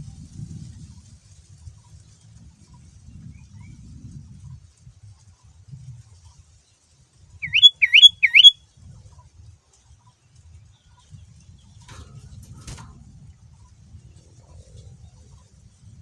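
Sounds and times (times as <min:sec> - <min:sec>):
bird whistled rising notes: 0:07.4 - 0:08.5.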